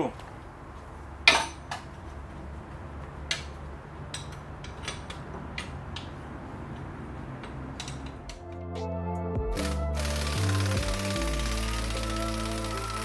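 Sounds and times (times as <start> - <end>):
wrench clicking: 9.6 - 13.0.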